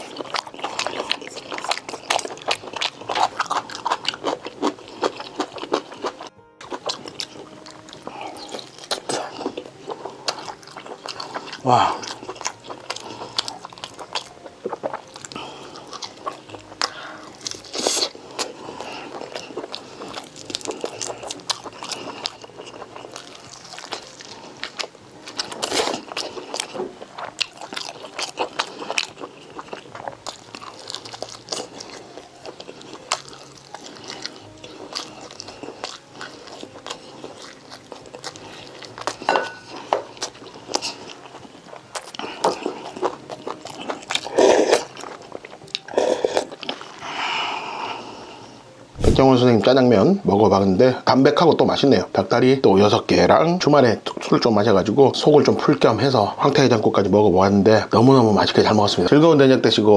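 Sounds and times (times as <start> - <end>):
close chewing and biting: 0.0 - 49.7.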